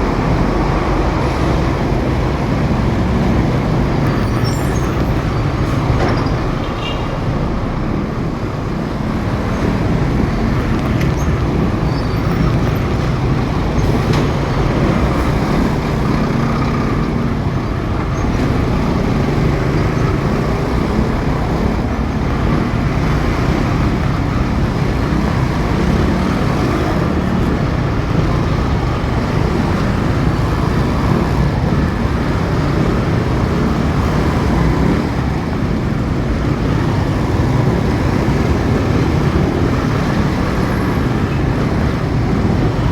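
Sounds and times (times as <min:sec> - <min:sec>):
motorcycle engine and road noise: 0:00.0 - 0:42.9.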